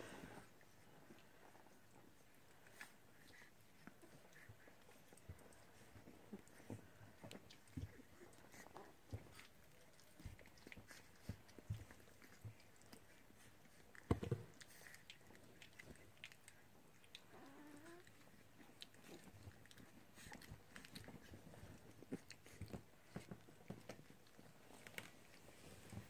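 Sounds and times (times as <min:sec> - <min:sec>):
puppies chewing: 0:00.3 - 0:26.0.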